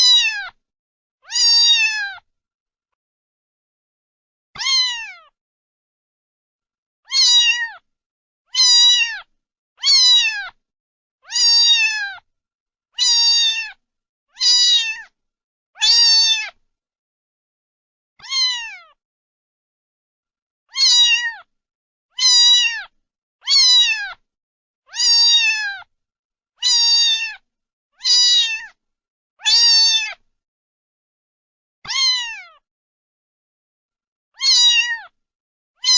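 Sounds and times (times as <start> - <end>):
cat meowing: 0.0 - 0.6, 1.2 - 2.2, 4.6 - 5.4, 7.1 - 7.8, 8.5 - 10.6, 11.2 - 12.2, 13.0 - 13.8, 14.4 - 15.1, 15.8 - 16.6, 18.2 - 19.0, 20.7 - 21.5, 22.2 - 24.2, 24.9 - 25.9, 26.6 - 27.4, 28.0 - 28.8, 29.4 - 30.2, 31.9 - 32.6, 34.4 - 35.2.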